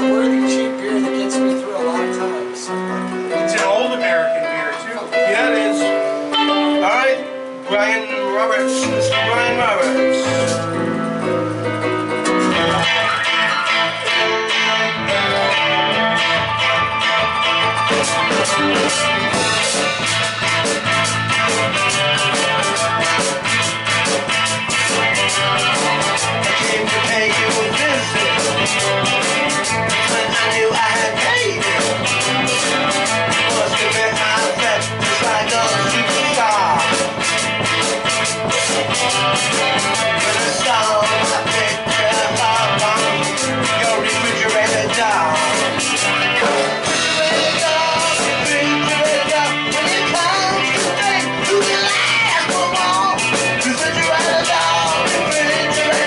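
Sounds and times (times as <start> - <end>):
drums: 0.0 - 56.0
electric guitar: 0.0 - 56.0
live rock band playing: 0.0 - 56.0.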